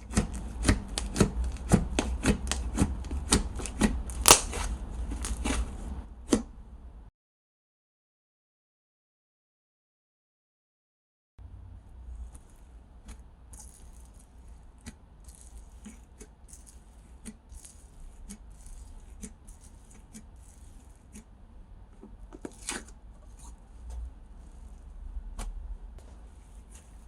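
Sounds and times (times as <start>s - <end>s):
slime squishing clicks and pops: 4.1s - 4.6s
slime snapping: 4.1s - 5.4s.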